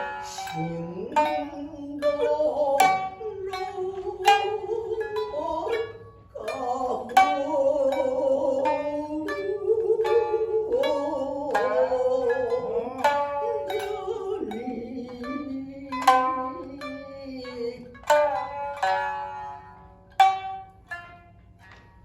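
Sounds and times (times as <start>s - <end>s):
person singing: 0.0s - 18.2s
higher second shamisen: 0.0s - 22.0s
shamisen plucked: 0.0s - 22.0s.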